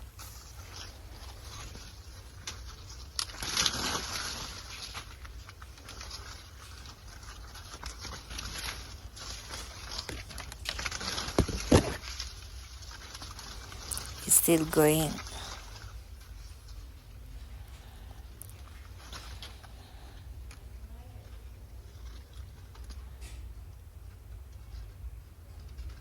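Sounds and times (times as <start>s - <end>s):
dry plants rustling and crackling: 0.0s - 14.2s.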